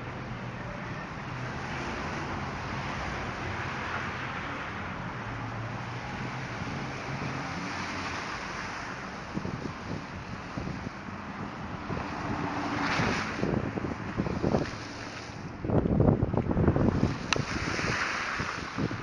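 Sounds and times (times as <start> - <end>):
traffic engine hum: 0.0 - 19.0.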